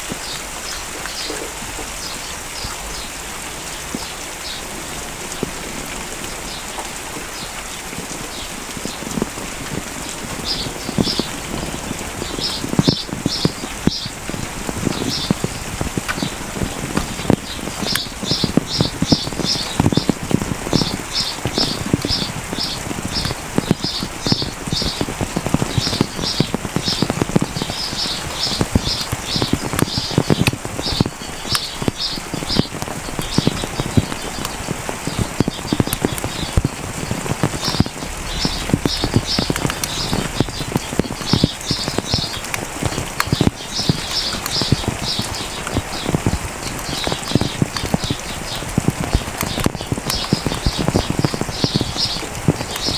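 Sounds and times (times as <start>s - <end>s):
rain drops splashing: 0.0s - 52.9s.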